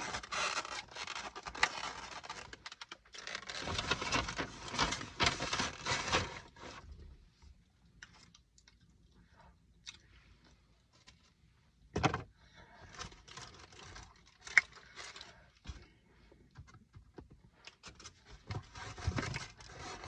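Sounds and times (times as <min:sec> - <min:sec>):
food packaging rustling: 0:00.0 - 0:06.8.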